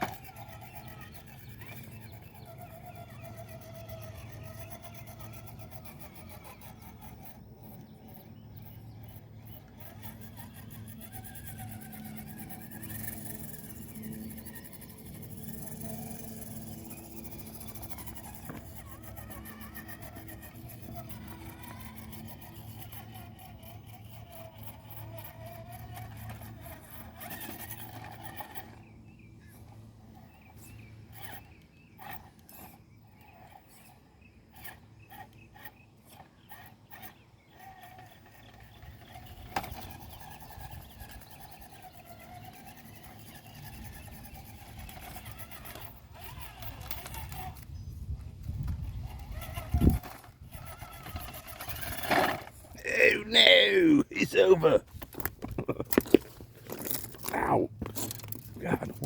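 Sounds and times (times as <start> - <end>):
electric motor and drivetrain whining: 0.0 - 52.9, 54.8 - 59.0.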